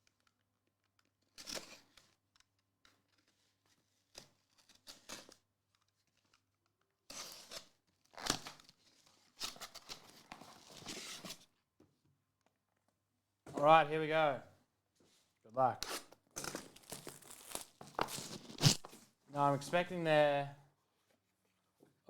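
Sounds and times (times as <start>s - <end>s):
packaging tearing and crinkling: 15.9s - 19.0s.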